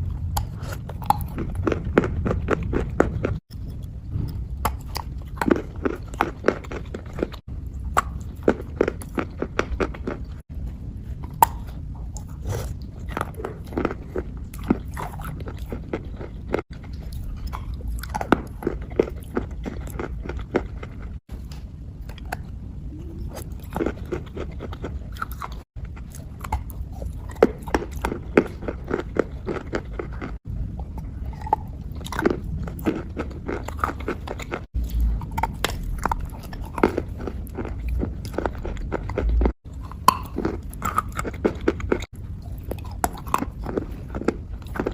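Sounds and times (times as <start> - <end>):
wet crunching and chewing: 0.0 - 44.9
low rumble: 30.4 - 33.8, 34.4 - 40.9.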